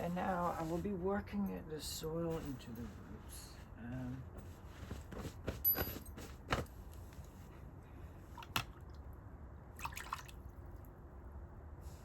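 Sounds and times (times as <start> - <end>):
rustling of potting soil: 0.0 - 8.4.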